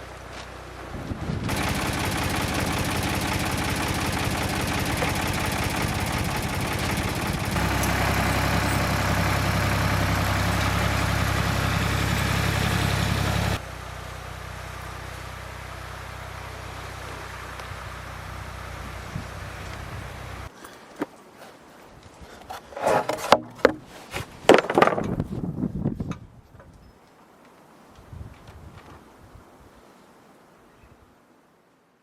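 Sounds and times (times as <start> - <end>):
sawmill engine running: 0.0 - 20.5.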